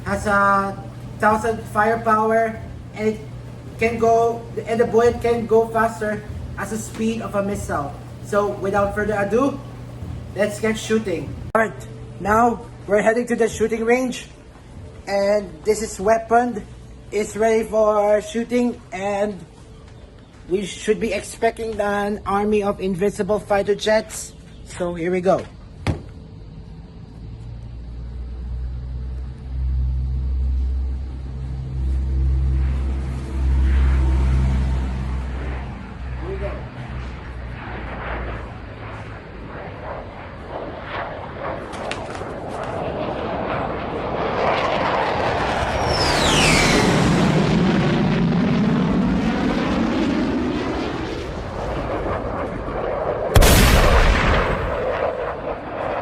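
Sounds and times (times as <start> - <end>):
jet engine rumble: 0.0 - 18.0, 25.5 - 56.0
loud explosion blast: 44.3 - 50.4, 53.3 - 56.0.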